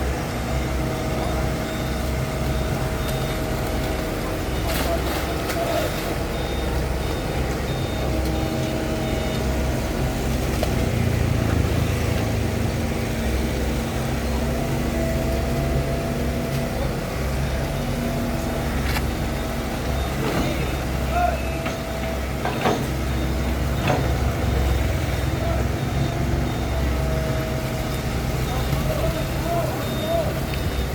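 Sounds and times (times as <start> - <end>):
excavator diesel engine running: 0.0 - 30.9
high-pitched beeping alarm: 19.1 - 30.9.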